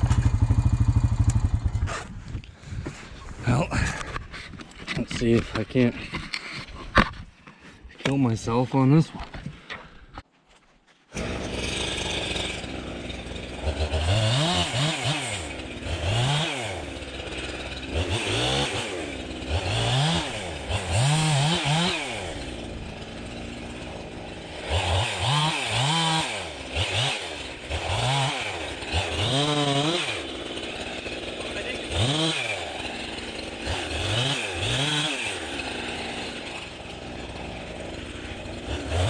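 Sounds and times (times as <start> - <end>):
chainsaw revving while cutting: 11.1 - 39.0.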